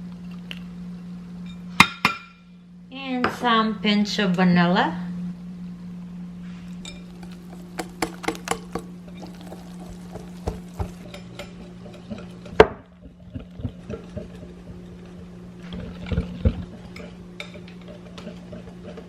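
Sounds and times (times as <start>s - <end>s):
steady low hum: 0.0s - 19.0s
batter stirred in a bowl: 6.7s - 19.0s
utensil clinking against bowl: 6.8s - 12.6s.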